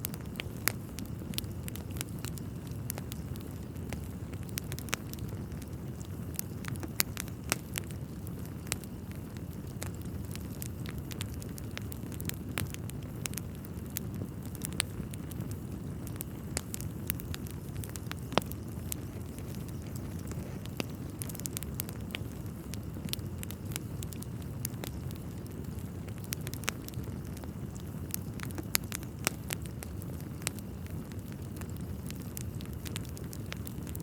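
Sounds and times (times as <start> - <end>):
fire crackling and popping: 0.0 - 34.0
wood fire rumbling: 0.0 - 34.0.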